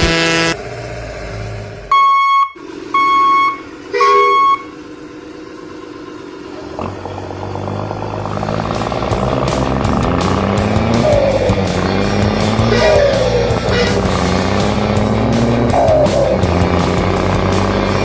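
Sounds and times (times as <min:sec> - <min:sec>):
electronic horn beeps: 0:00.0 - 0:00.6, 0:01.9 - 0:04.8
vehicle engine: 0:00.0 - 0:18.0.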